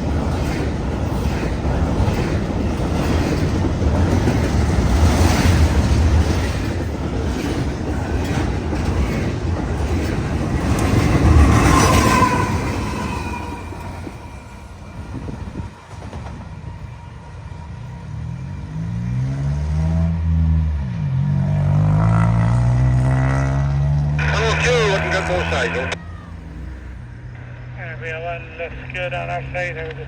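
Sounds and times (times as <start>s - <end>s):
train wheels clattering on rails: 0.0s - 16.9s.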